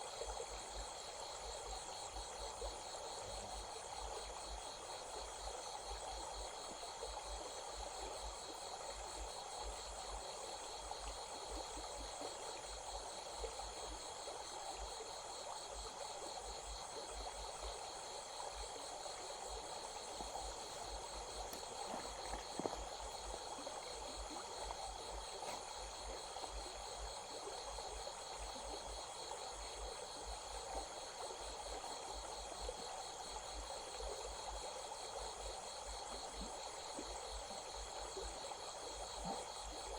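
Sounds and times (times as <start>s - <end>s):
flowing stream: 0.0s - 39.9s
insects trilling: 14.8s - 33.9s.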